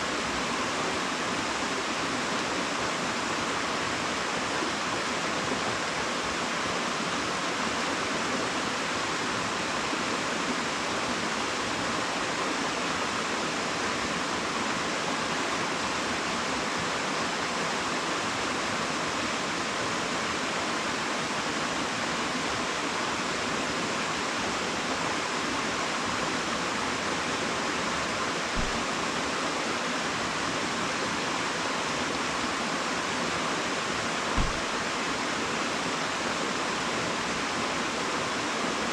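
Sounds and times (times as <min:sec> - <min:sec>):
waterfall rushing: 0:00.0 - 0:38.9
low bump: 0:34.4 - 0:34.8.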